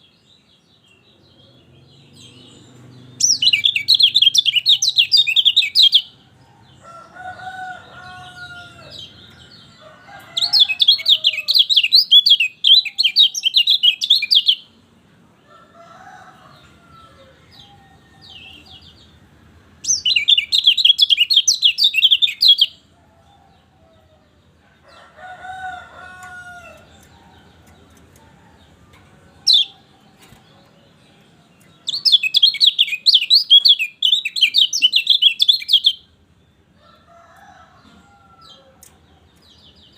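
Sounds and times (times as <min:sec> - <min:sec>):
bird twittering song: 0:00.0 - 0:06.9, 0:07.6 - 0:14.7, 0:19.8 - 0:23.4, 0:25.8 - 0:36.6.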